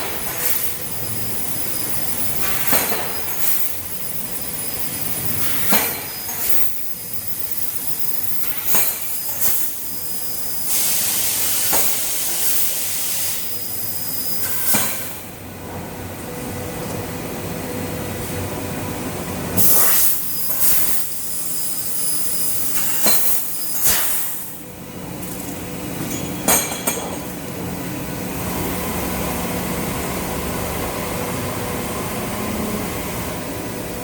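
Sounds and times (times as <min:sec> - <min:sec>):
laser cutter hissing: 0:00.0 - 0:15.2, 0:19.6 - 0:24.6.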